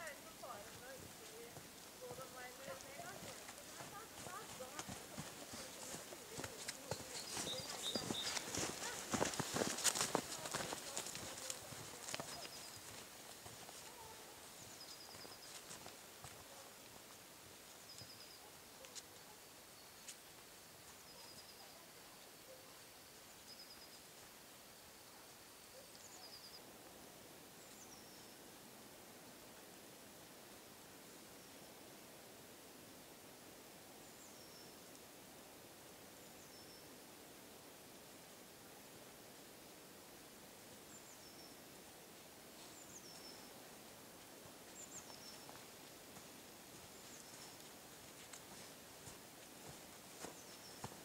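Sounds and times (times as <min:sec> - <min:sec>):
faint steady hiss: 0:00.0 - 0:51.0
small bird calling: 0:02.7 - 0:10.4.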